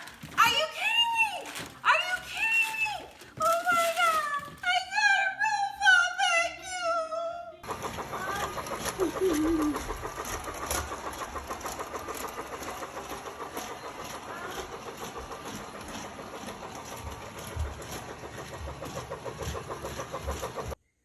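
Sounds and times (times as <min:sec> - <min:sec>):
toy robot motor buzzing: 0:07.6 - 0:20.8.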